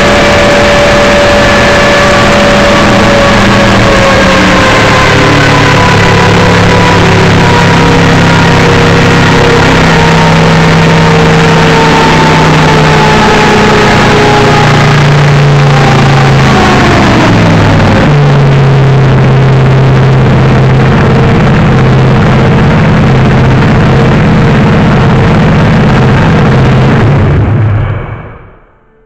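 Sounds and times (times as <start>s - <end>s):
aircraft engine running loud: 0.0s - 28.2s.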